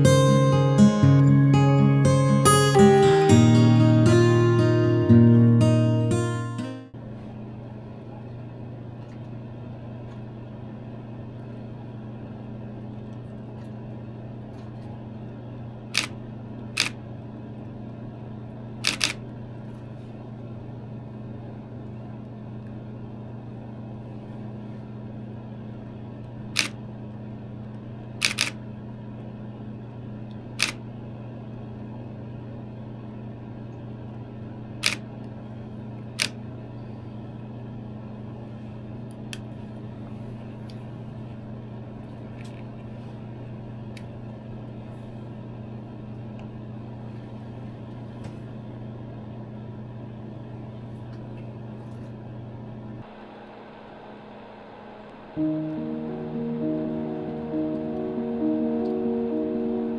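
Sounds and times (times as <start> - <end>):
camera shutter firing: 18.8 - 19.2, 26.6 - 26.8, 28.2 - 28.6
steady low hum: 55.4 - 59.9.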